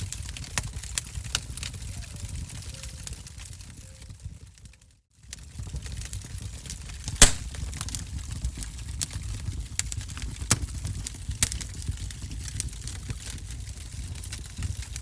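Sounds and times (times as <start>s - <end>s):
fire crackling and popping: 5.2s - 15.0s.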